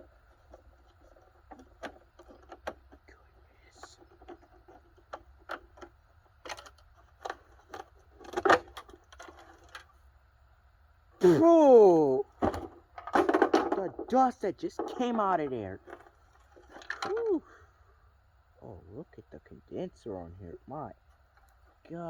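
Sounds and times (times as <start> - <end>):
metal and plastic parts clicking: 0.0 - 3.1, 3.9 - 9.9, 12.4 - 17.3
clatter of knocks: 12.4 - 17.1.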